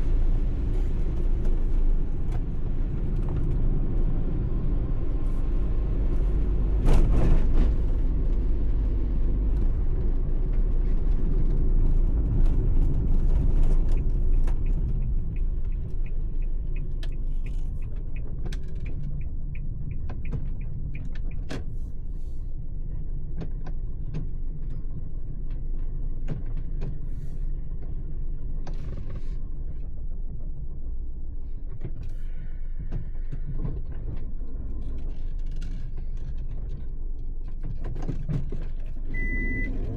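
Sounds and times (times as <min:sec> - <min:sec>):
van road rumble: 0:00.0 - 0:39.9.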